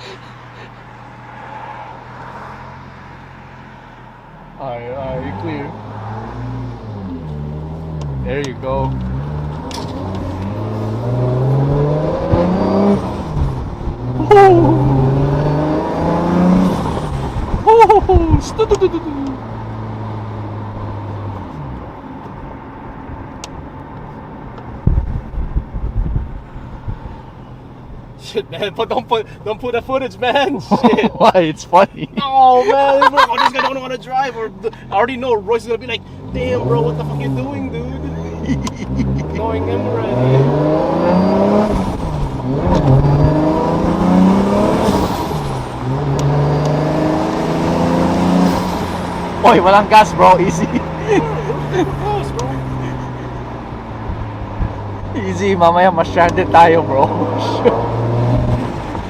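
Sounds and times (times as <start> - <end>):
car engine running: 21.7 - 59.0.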